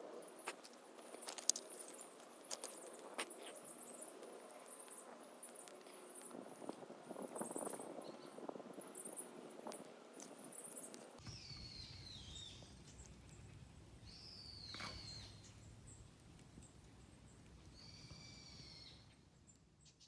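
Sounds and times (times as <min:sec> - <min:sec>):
faint high bird calls: 0:07.2 - 0:16.0, 0:16.6 - 0:20.0
low wind rumble: 0:11.2 - 0:19.4.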